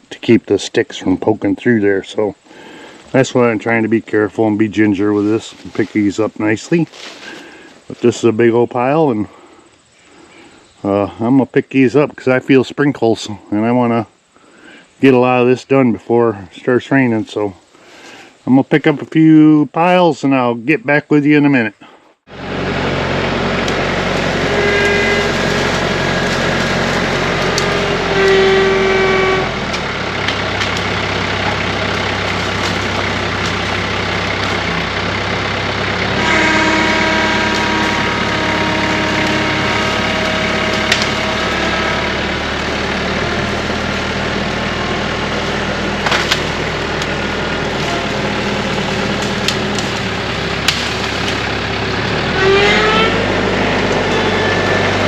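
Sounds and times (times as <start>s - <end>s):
diesel tractor engine running: 1.0s - 8.1s, 22.3s - 55.0s
sticks snapping: 40.9s - 41.2s.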